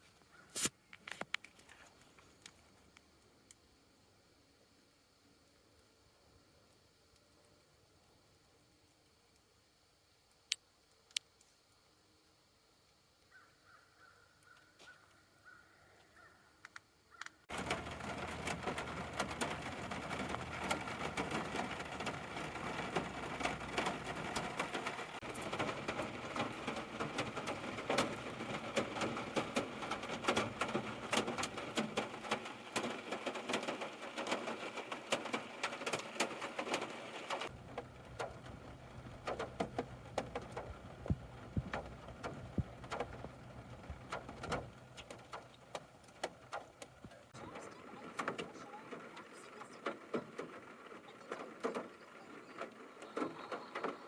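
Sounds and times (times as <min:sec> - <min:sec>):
rain pattering: 0:17.5 - 0:54.0.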